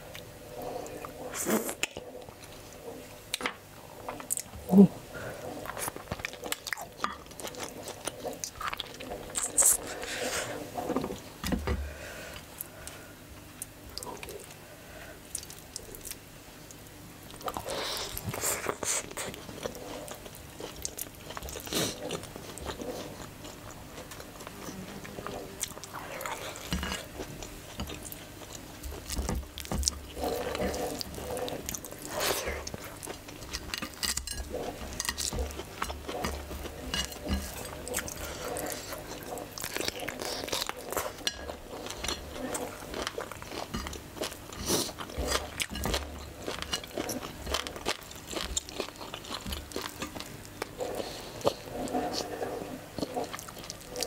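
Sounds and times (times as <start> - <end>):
person chewing and biting food: 17.3 - 52.2.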